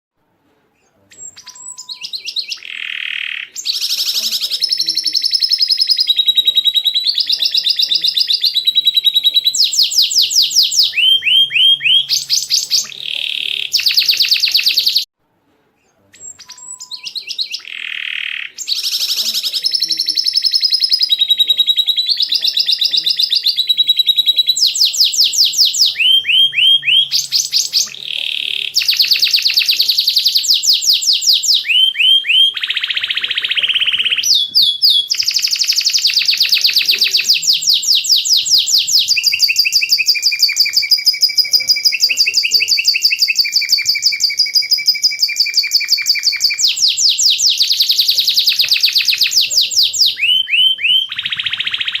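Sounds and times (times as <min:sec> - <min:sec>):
young birds chirping: 0:00.7 - 0:15.1, 0:15.8 - 0:52.0.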